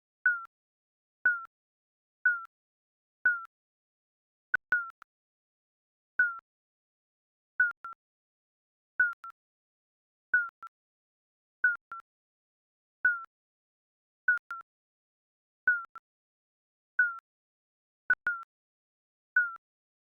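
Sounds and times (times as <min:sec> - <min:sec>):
digital timer beeps: 0:04.6 - 0:05.1, 0:07.6 - 0:08.0, 0:09.0 - 0:09.4, 0:10.4 - 0:10.7, 0:11.6 - 0:12.1, 0:14.3 - 0:14.7, 0:18.1 - 0:18.5.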